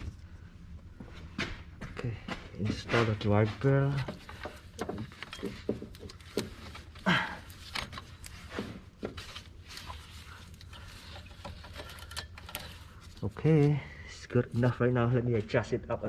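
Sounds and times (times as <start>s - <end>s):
light clicks and knocks: 3.8s - 7.0s.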